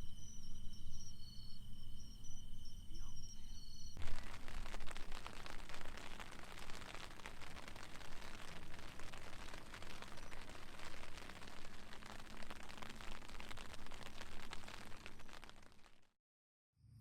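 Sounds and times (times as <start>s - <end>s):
crickets chirping: 0.0s - 15.3s
crackling hiss with tiny pops: 3.4s - 16.1s.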